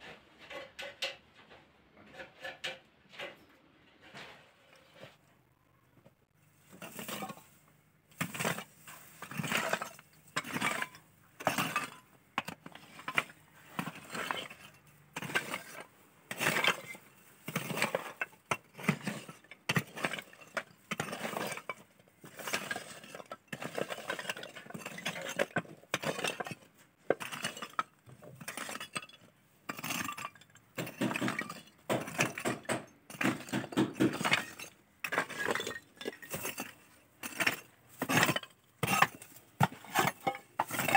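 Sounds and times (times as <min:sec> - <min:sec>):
hand tools scraping tile: 0:02.0 - 0:05.2, 0:29.7 - 0:40.9.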